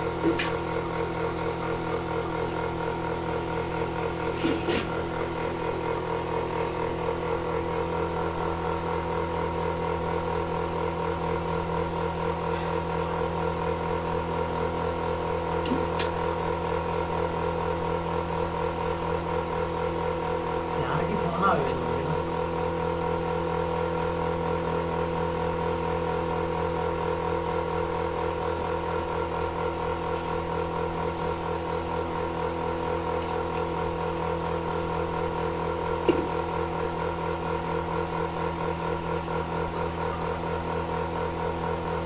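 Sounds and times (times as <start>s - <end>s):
milking machine pulsing hum: 0.0s - 42.0s.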